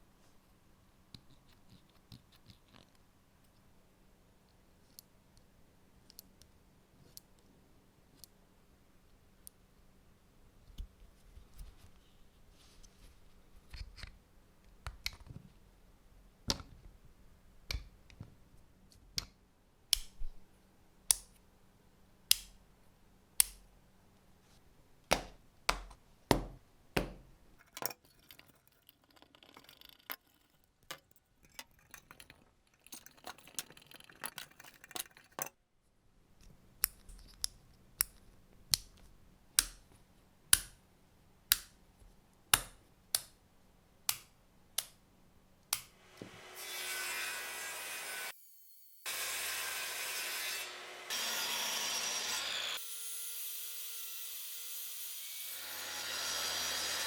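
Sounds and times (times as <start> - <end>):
small hard parts clicking: 27.6 - 35.6.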